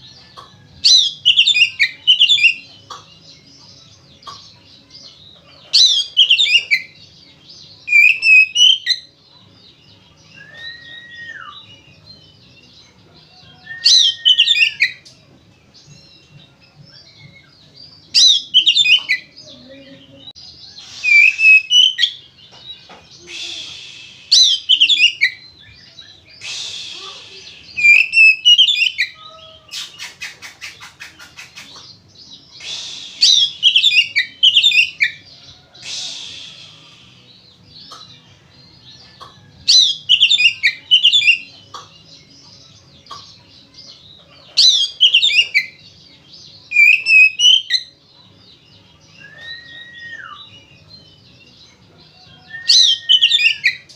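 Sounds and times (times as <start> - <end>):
bird whistled song: 0.0 - 9.3, 10.2 - 15.2, 16.1 - 19.4, 20.4 - 38.1, 39.0 - 46.0, 46.6 - 48.2, 49.0 - 53.9
bird hissing rasps: 20.7 - 22.2, 23.1 - 25.4, 26.3 - 29.0, 32.5 - 35.0, 35.7 - 38.1.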